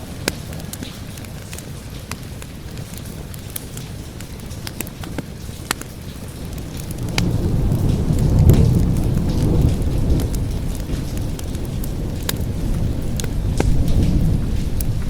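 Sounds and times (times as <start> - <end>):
steady rain: 0.0 - 15.0
wood fire crackling: 0.0 - 15.0
low rolling thunder: 6.4 - 15.0.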